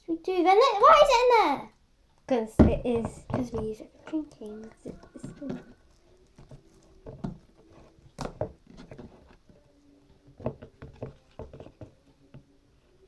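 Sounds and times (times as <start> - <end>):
objects handled on a table: 2.6 - 13.0.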